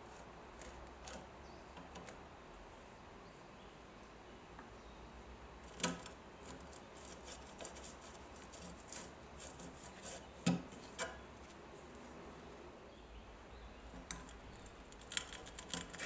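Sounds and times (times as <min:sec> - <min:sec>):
faint light ticks and scraping: 0:05.6 - 0:11.9, 0:13.9 - 0:16.0.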